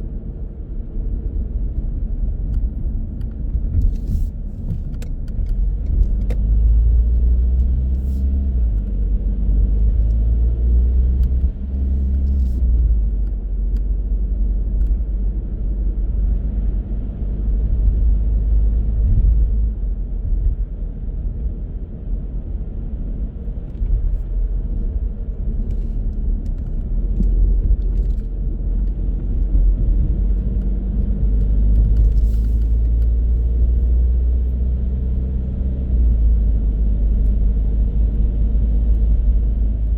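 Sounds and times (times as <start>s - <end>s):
car engine rumble: 0.0s - 39.9s
road noise: 0.0s - 39.9s.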